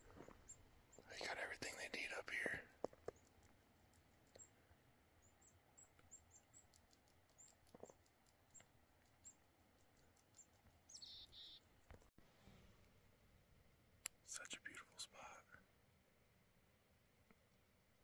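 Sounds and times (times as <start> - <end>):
small bird chirping faintly: 0.0 - 12.1.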